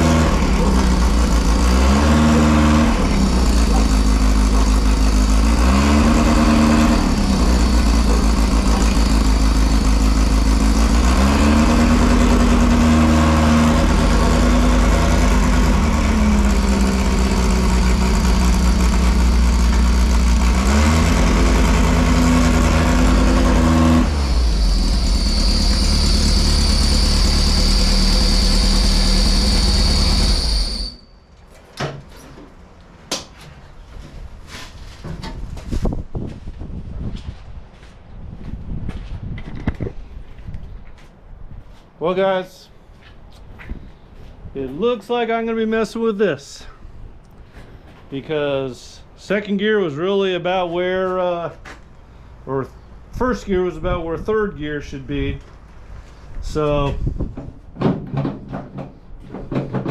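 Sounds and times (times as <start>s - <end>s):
engine revving under load: 0.0s - 31.0s
high engine whine: 0.0s - 31.6s.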